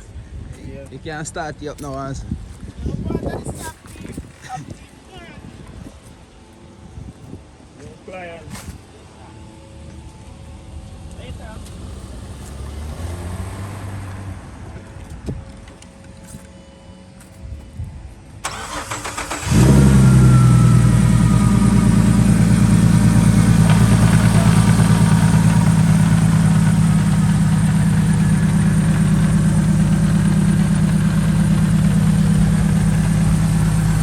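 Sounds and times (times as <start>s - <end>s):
car engine starting and idling: 18.4s - 34.0s.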